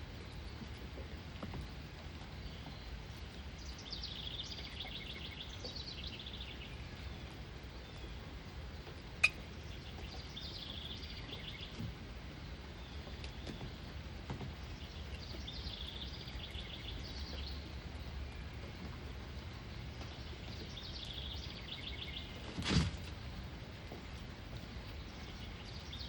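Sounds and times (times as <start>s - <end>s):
low background noise: 0.0s - 26.0s
songbird trilling: 9.2s - 11.7s.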